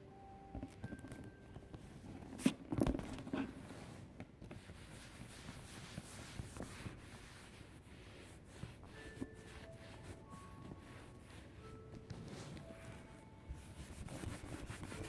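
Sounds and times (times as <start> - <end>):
soft rubbing: 3.2 - 15.0.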